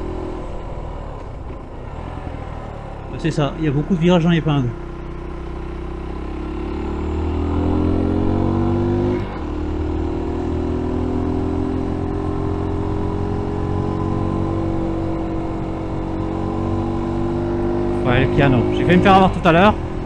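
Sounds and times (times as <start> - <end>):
motorcycle engine pulling hard: 0.0 - 20.0.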